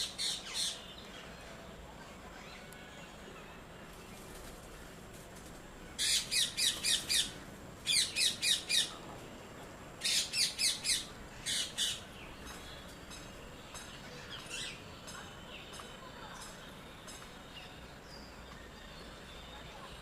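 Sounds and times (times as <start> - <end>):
parakeets squawking: 6.0 - 8.9.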